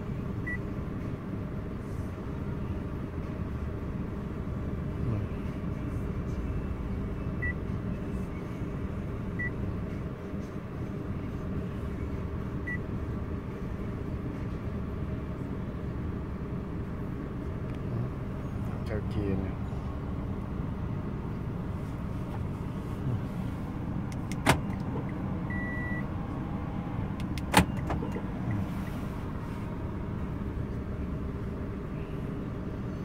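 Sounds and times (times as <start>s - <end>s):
car engine idling: 0.0s - 33.0s
short high beeps: 25.5s - 26.1s.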